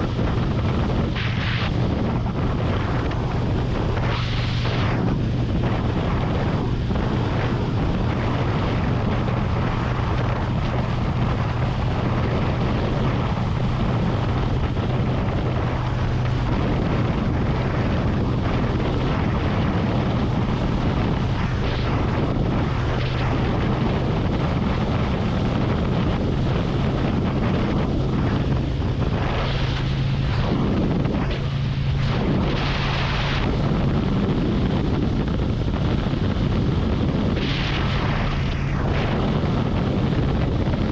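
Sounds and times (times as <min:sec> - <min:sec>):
motorcycle engine cruising: 0:00.0 - 0:40.9
wind rush on microphone: 0:00.0 - 0:40.9.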